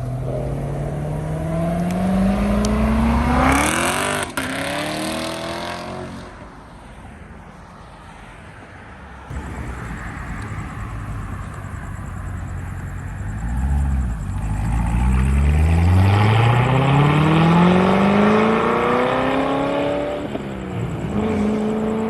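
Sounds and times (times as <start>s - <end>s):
car engine accelerating hard: 9.3s - 22.0s.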